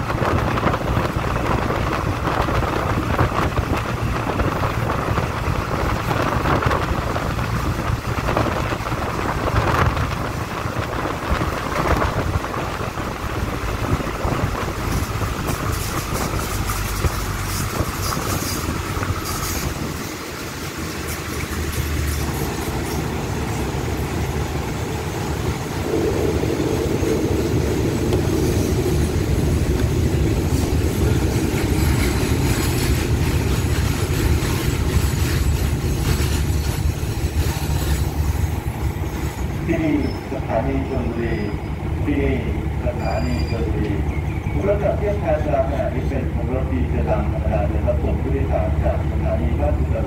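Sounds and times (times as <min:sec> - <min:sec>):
wheels clicking over rail joints: 0:00.0 - 0:25.7, 0:27.7 - 0:39.6
rushing air: 0:00.0 - 0:40.5
train wheels rumbling on rails: 0:00.0 - 0:50.0.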